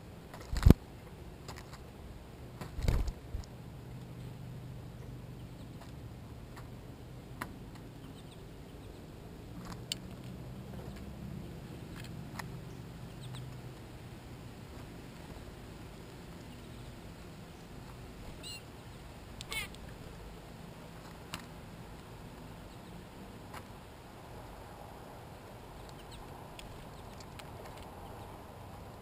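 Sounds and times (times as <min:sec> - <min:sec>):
bird chirps: 0:08.0 - 0:09.1, 0:12.6 - 0:13.5, 0:18.4 - 0:19.7.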